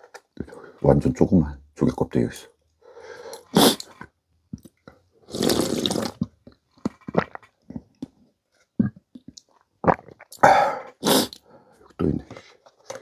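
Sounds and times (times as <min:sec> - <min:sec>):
loud slurp of soup: 0:03.4 - 0:03.9, 0:05.3 - 0:06.3, 0:09.9 - 0:11.4.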